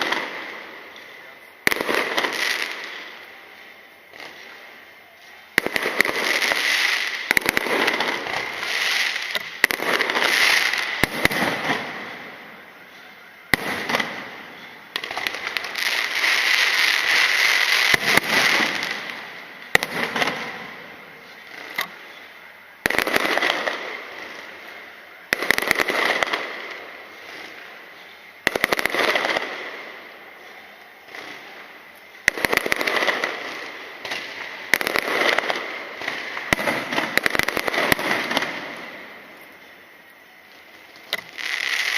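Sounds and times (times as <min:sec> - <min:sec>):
fireworks crackling: 0:00.0 - 0:41.9.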